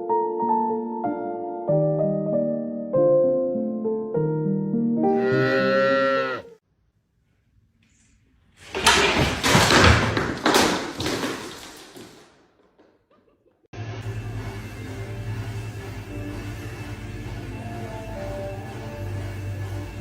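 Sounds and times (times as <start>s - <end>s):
music: 0.0s - 5.8s, 13.8s - 20.0s
rough animal call: 5.1s - 6.6s.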